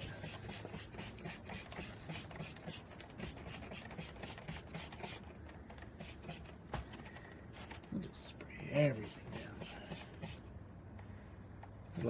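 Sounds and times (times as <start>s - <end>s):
spray bottle squirting: 0.1s - 5.2s, 6.0s - 6.5s, 9.0s - 10.5s.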